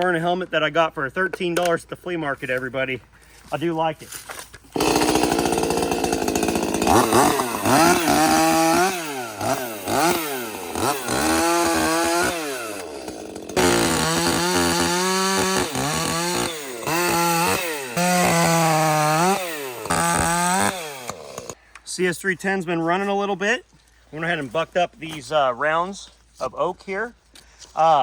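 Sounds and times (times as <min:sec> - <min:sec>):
chainsaw revving: 0:04.8 - 0:21.6.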